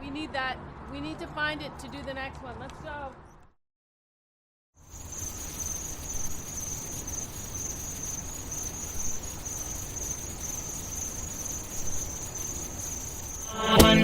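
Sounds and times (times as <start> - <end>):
insects chirping: 4.8 - 14.0.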